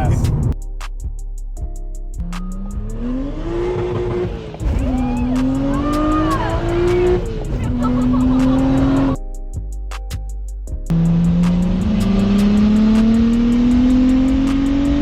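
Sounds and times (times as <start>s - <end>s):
car engine accelerating: 2.2s - 9.2s, 10.9s - 15.0s.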